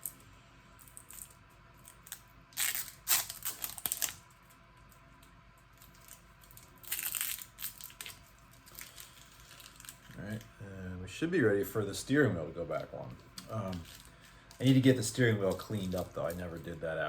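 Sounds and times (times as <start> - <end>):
tape peeling and crumpling: 0.8 - 10.5, 13.3 - 16.8.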